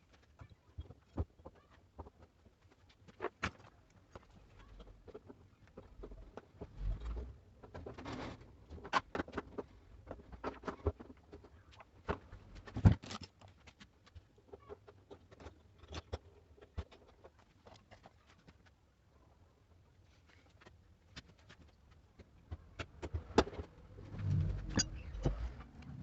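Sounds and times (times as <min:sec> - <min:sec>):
tools clicking and knocking: 0:24.7 - 0:25.3.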